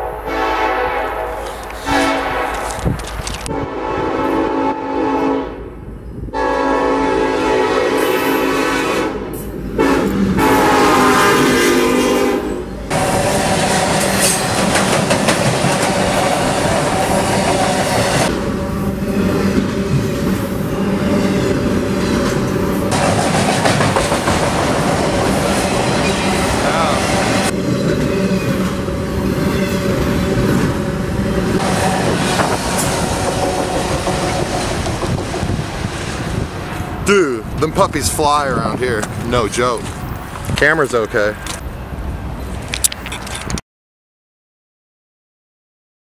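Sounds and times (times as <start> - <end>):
train air horn blasts: 0.0 - 5.7, 6.3 - 14.4
train rumbling across a bridge: 0.0 - 42.8.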